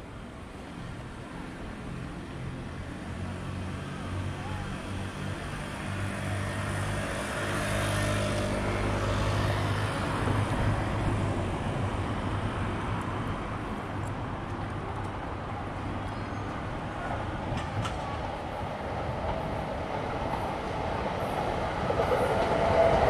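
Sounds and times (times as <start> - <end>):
electric train passing: 0.0 - 14.0, 16.5 - 23.0.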